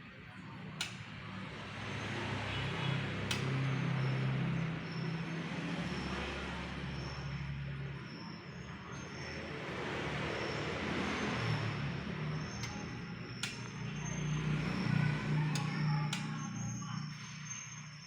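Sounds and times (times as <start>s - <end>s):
road vehicle passing by: 0.0s - 18.0s
sharp clicks: 0.8s - 1.1s, 3.3s - 3.7s, 12.6s - 13.9s.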